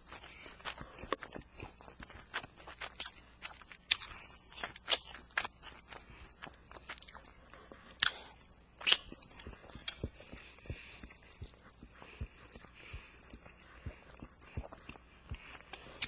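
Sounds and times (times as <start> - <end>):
person chewing and biting: 0.0 - 16.0.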